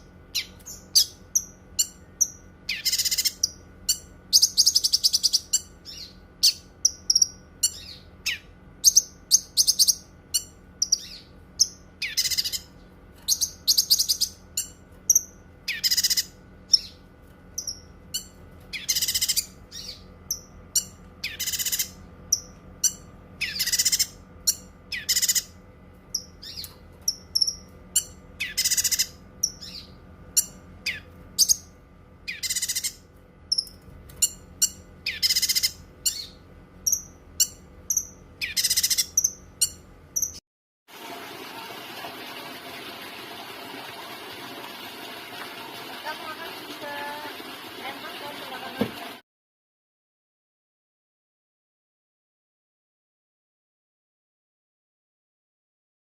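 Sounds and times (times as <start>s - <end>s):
bird chirping and trilling: 0.0s - 17.0s, 17.6s - 40.4s.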